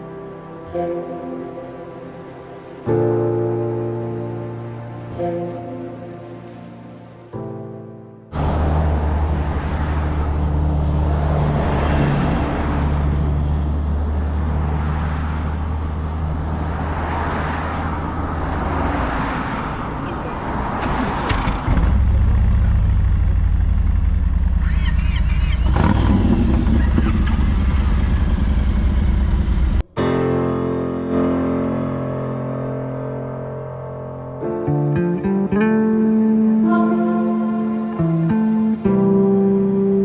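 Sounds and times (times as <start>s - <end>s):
motorcycle engine running: 21.3s - 29.9s.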